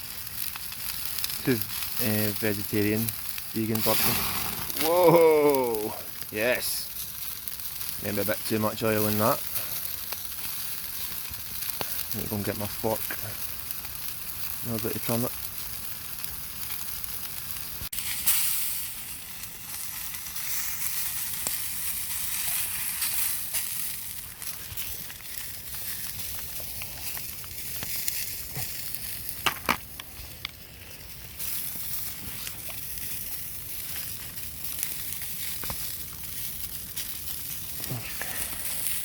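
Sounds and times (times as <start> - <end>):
burgers sizzling in a frying pan: 0.0 - 39.0
sharp clicks and knocks: 29.4 - 29.8.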